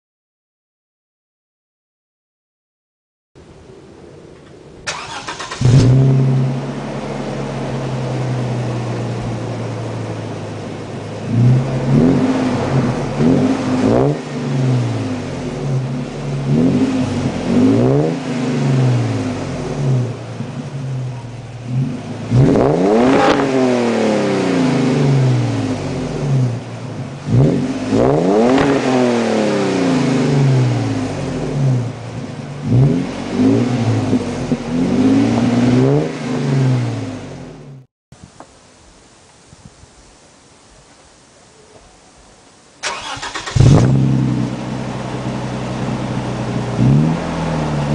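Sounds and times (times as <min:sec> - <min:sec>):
truck engine idling and revving: 0:04.9 - 0:37.9, 0:42.8 - 0:47.9.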